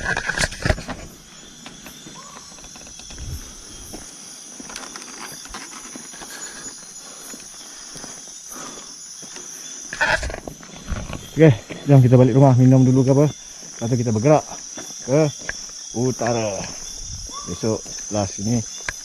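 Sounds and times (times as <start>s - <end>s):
footsteps on ground: 0.0s - 6.4s, 9.2s - 11.8s
insects buzzing: 0.0s - 19.0s.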